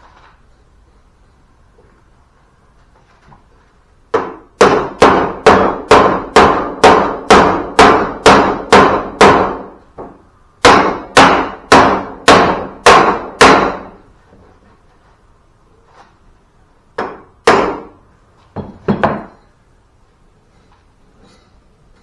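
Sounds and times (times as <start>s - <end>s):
hammer striking metal: 4.2s - 14.0s.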